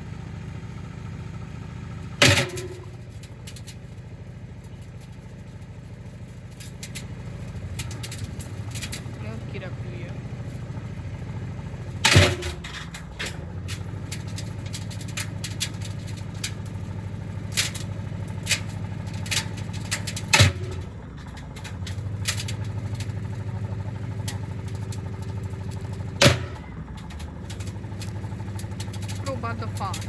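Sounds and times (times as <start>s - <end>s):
washing machine humming: 10.7s - 30.0s.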